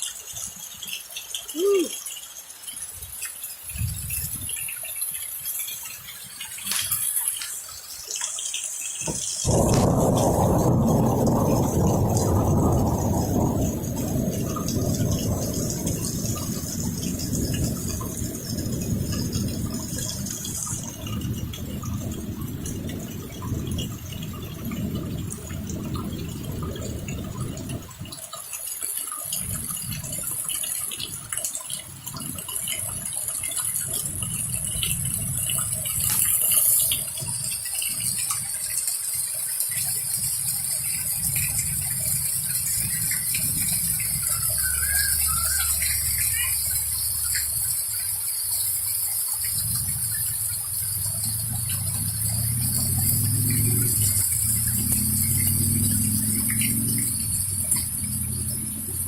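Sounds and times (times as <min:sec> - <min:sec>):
heavy rain pouring and splashing: 0:00.0 - 0:59.0
low thunder rumble: 0:09.1 - 0:28.3, 0:29.3 - 0:38.5, 0:40.0 - 0:47.6, 0:49.4 - 0:59.0.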